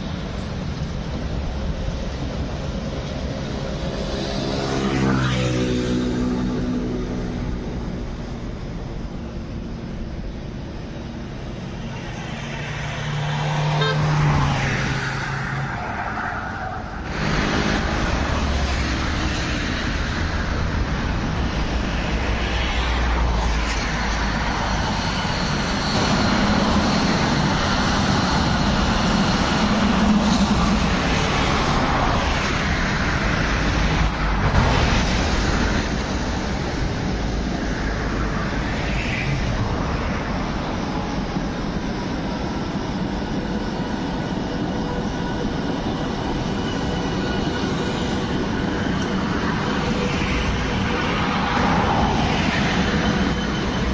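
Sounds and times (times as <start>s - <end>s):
train rumbling on tracks: 0.0s - 53.9s
train horn toot: 13.7s - 14.3s.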